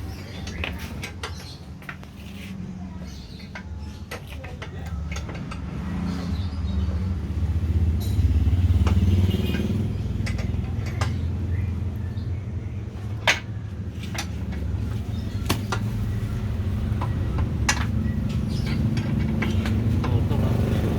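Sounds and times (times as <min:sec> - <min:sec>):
sharp clicks and knocks: 0:03.2 - 0:06.0, 0:08.0 - 0:11.4, 0:16.8 - 0:20.9.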